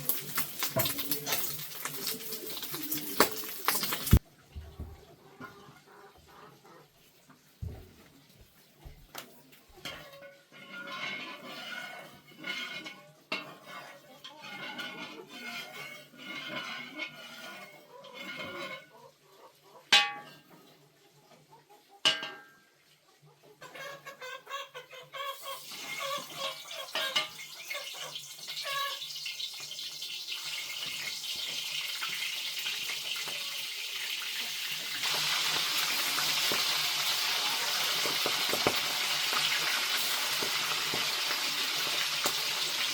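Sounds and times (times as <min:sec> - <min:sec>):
food sizzling in hot oil: 0:00.0 - 0:04.2, 0:25.4 - 0:42.9
utensils clinking against pot: 0:00.0 - 0:04.2, 0:09.7 - 0:18.9, 0:25.6 - 0:33.4, 0:34.0 - 0:42.9.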